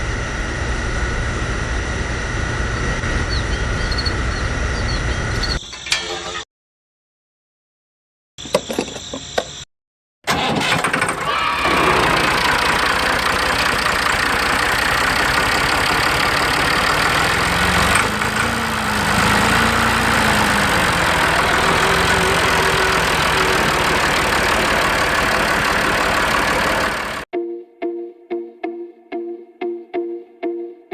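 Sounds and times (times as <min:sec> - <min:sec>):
motor running: 0:11.2 - 0:27.3.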